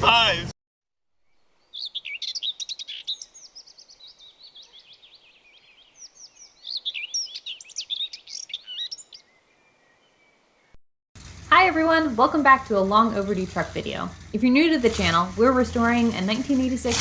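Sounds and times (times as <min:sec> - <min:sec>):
songbird chirping and warbling: 0:01.3 - 0:10.8.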